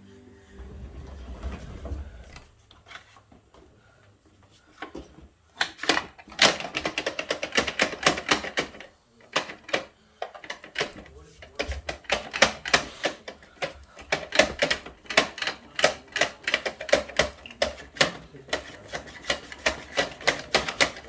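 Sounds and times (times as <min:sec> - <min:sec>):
plastic toy trucks clicking: 0:04.8 - 0:21.0.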